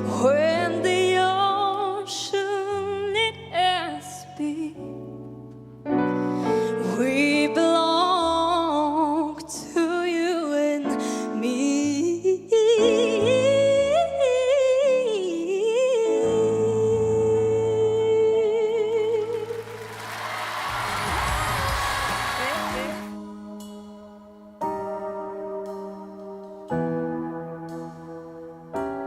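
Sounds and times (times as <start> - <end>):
person singing with vibrato: 6.7 - 19.8
audience applause and cheering: 19.2 - 23.2.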